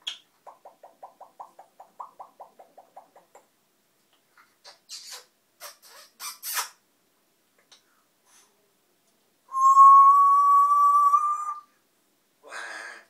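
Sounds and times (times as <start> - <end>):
parrot long whistle: 9.5 - 11.7.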